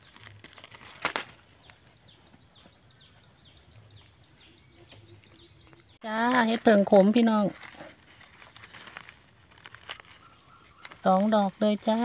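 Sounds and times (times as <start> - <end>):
insect whine: 0.0 - 12.0
bird calling in high chirps: 1.5 - 6.0, 9.8 - 12.0.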